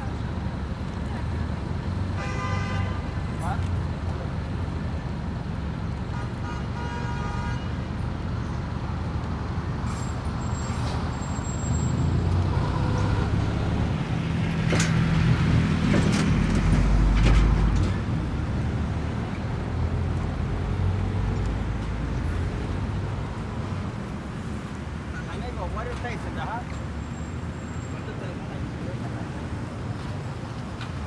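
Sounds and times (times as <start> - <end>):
faint car horn: 2.2 - 3.2, 6.1 - 7.8, 12.5 - 13.4
passing cars rumble: 7.8 - 31.0
heavy vehicle passing: 11.8 - 24.6.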